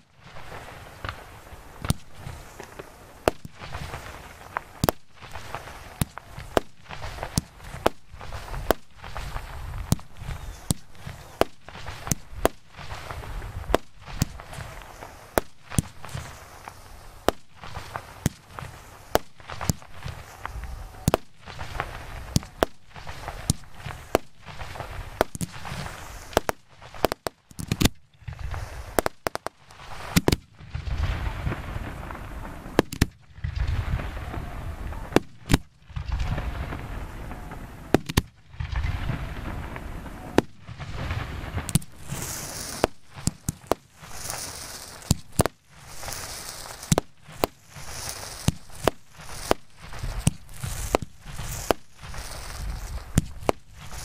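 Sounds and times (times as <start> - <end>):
fireworks bangs: 0.0 - 54.0
fireworks rumble and crackle: 0.0 - 54.0.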